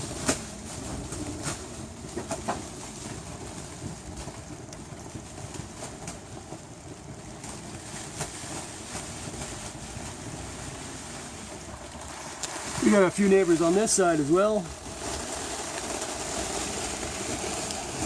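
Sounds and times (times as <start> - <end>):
raindrops ticking: 11.6 - 14.6.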